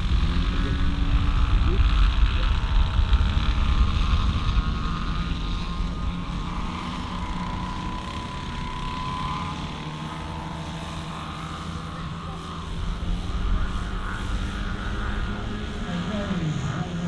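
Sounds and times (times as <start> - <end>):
wind on microphone: 0.0 - 9.8
model airplane engine and propeller: 0.0 - 17.0.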